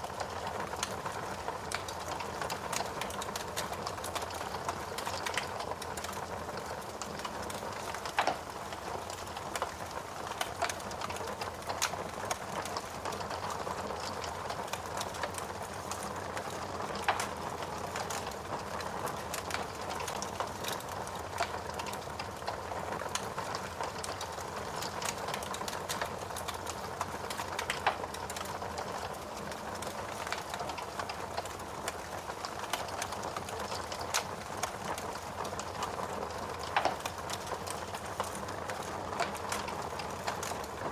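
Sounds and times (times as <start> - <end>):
steady rain: 0.0 - 40.9
wood fire crackling: 0.0 - 40.9.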